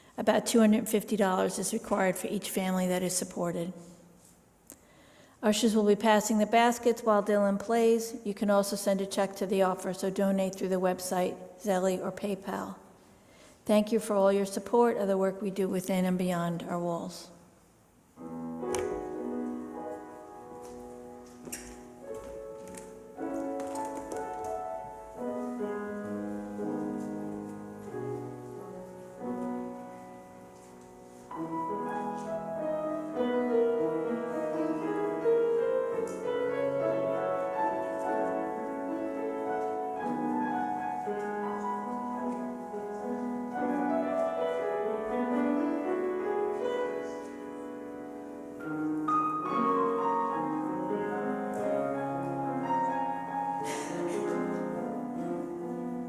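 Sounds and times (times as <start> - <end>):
solo piano playing slow music: 18.2 - 56.0.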